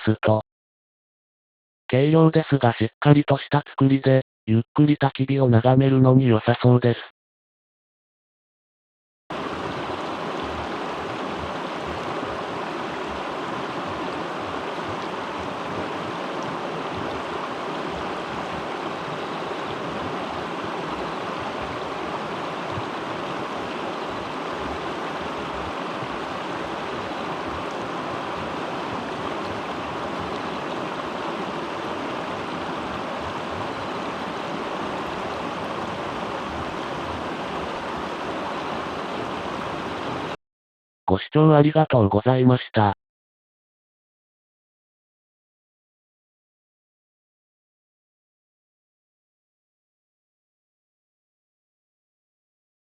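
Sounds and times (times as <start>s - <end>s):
stream water rushing: 9.3s - 40.4s.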